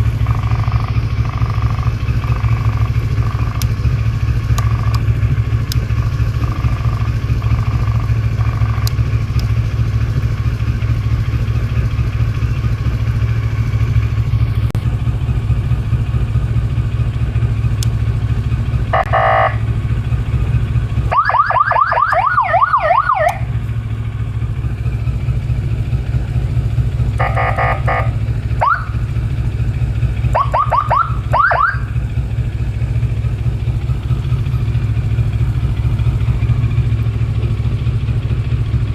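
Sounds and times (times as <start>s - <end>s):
motorcycle engine idling: 0.0s - 38.9s
emergency siren yelps: 18.9s - 19.7s, 21.0s - 23.6s, 27.1s - 29.2s, 30.2s - 32.0s.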